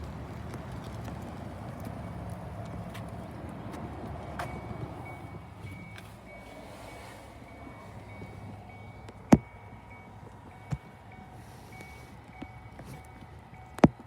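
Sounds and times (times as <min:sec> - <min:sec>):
low steady rumble: 0:00.0 - 0:13.8
faint high-pitched beeping: 0:04.4 - 0:13.8.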